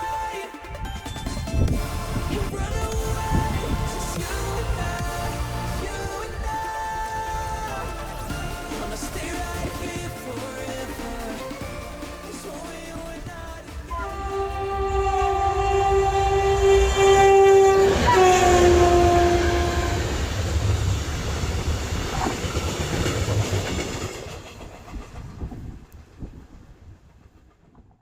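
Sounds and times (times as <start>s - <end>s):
train wheels rumbling on rails: 0.0s - 28.0s
train horn blast: 13.9s - 20.7s.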